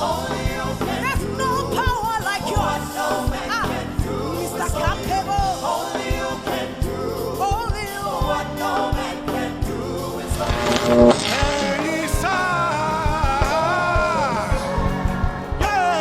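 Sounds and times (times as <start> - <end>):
steady drum beat: 0.0 - 15.7
choir singing gospel music: 0.0 - 16.0
band playing: 10.1 - 16.0.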